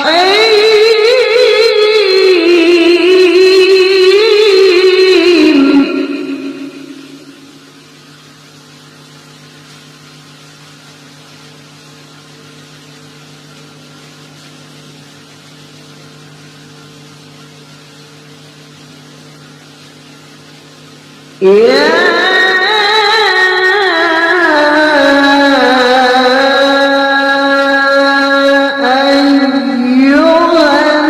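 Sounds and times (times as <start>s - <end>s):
steady higher tones: 0.0s - 8.8s.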